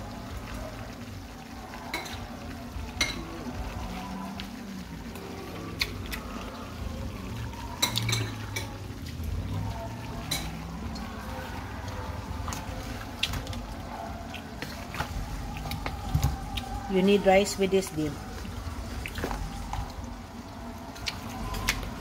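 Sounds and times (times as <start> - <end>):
metal utensils clinking on cookware: 1.9 - 2.4, 3.0 - 3.3, 7.8 - 8.8, 10.2 - 10.7.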